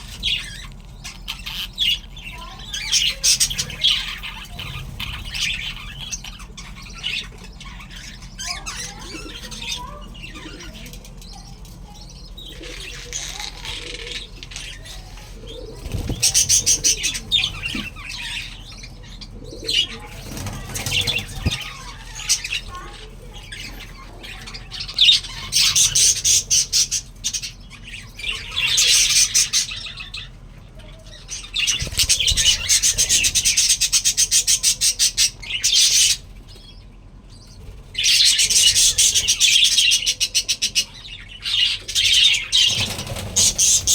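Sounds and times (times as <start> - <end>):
budgerigars chirping: 0.0 - 43.9
rapid pulsing bird calls: 12.2 - 30.2, 31.3 - 36.9, 37.5 - 43.9.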